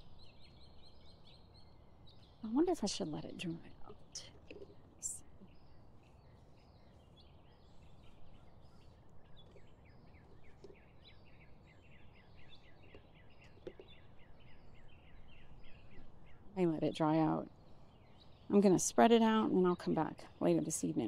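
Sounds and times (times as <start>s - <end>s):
bird chirping: 0.0s - 20.9s.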